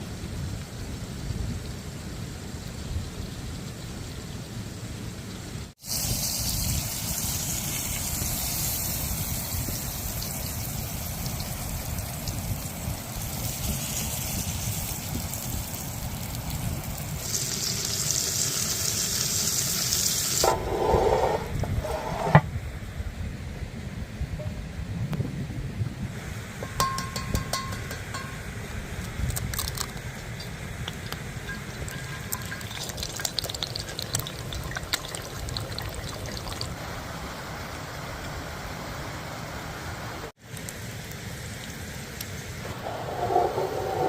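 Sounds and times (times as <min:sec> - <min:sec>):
running water: 0:06.4 - 0:22.4, 0:29.1 - 0:38.3.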